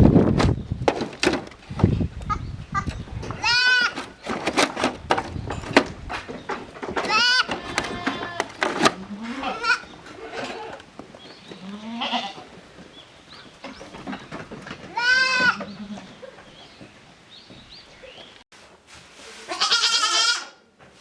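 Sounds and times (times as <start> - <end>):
goats bleating: 7.0 - 10.8, 11.6 - 12.5, 14.9 - 16.2, 19.5 - 20.6.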